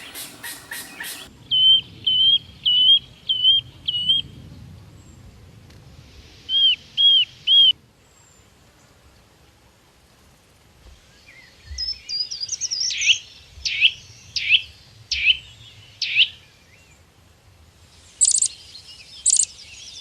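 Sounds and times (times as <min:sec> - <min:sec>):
songbird rasping notes: 0:00.0 - 0:01.3, 0:18.2 - 0:18.6
songbird whistled notes: 0:00.0 - 0:04.2, 0:18.2 - 0:20.0.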